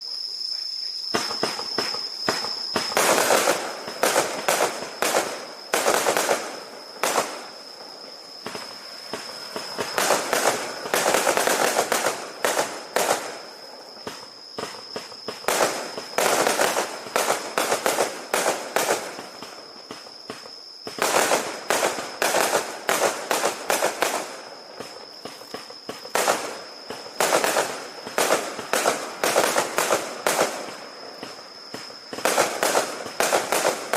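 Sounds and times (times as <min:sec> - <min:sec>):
fireworks cracking and banging: 0:01.2 - 0:33.9.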